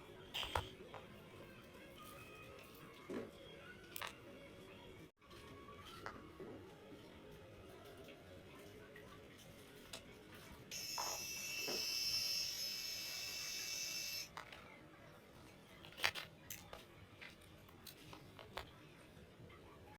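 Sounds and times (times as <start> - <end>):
label printer whirring: 10.7 - 14.3.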